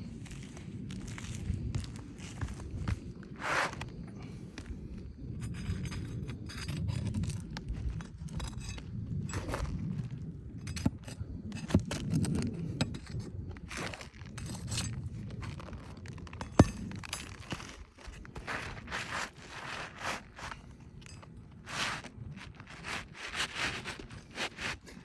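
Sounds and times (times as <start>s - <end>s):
roof shingles scraping and clinking: 13.7s - 25.0s.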